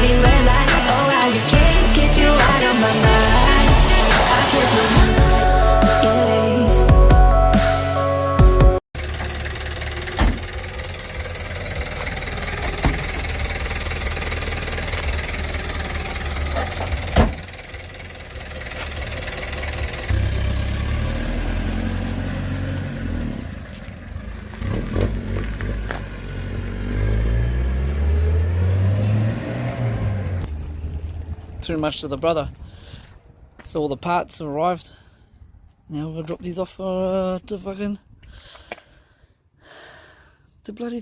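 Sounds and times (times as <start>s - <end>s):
vehicle engine revving: 0.0s - 6.0s, 9.0s - 31.6s.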